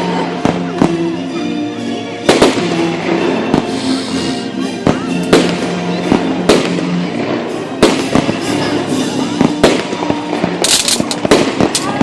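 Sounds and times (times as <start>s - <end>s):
music with long held notes: 0.0s - 12.0s
fireworks bangs: 2.2s - 4.0s, 4.8s - 12.0s
fireworks crackle: 2.2s - 12.0s.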